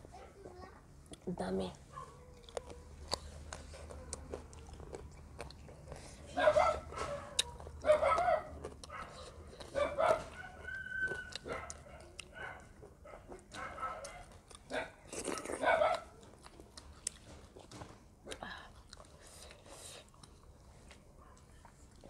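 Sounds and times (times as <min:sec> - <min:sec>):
chewing and mouth sounds: 0:02.1 - 0:22.0
animal calls: 0:09.8 - 0:11.8.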